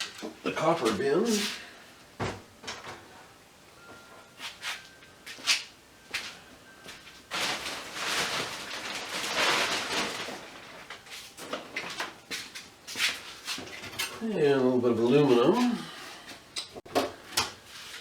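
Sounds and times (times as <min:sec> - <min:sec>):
metal parts rustling and scraping: 0:07.3 - 0:14.2.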